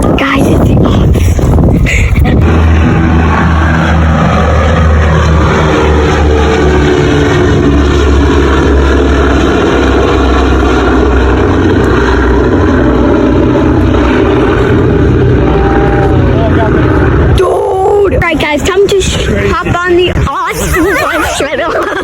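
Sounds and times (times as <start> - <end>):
loud engine drone: 0.0 - 22.0.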